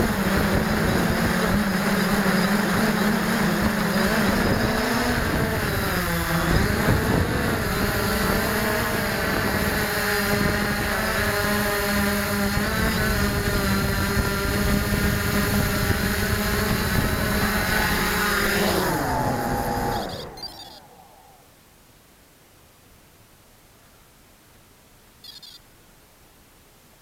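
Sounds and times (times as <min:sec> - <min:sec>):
drone propellers whining: 0:00.0 - 0:21.5.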